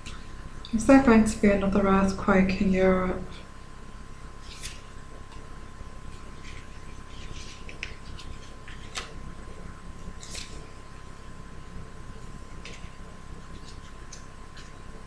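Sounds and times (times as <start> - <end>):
steady low hum: 0.0 - 15.0
cards being shuffled: 4.4 - 4.9, 6.1 - 9.2, 10.2 - 10.7.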